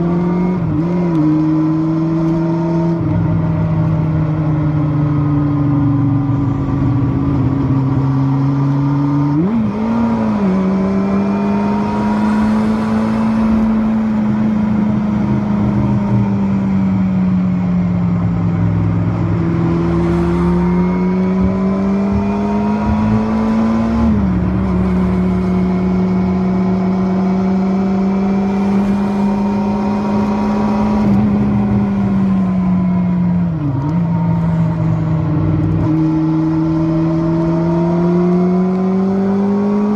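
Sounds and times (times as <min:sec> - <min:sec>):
motorcycle engine running: 0:11.6 - 0:37.4.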